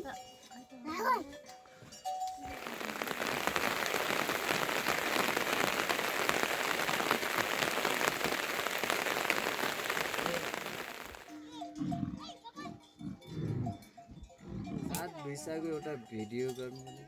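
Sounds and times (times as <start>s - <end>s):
steady rain falling: 2.5s - 11.3s.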